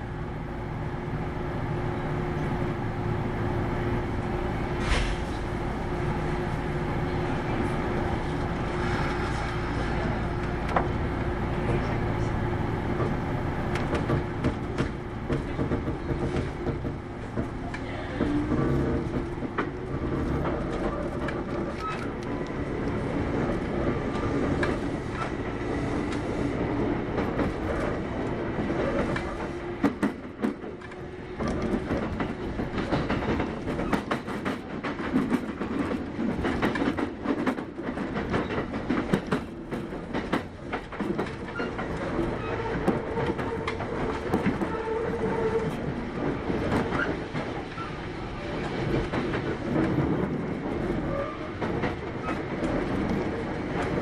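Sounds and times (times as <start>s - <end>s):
train wheels and motors rumbling: 0.0s - 54.0s
wheels clicking over rail joints: 26.1s - 54.0s.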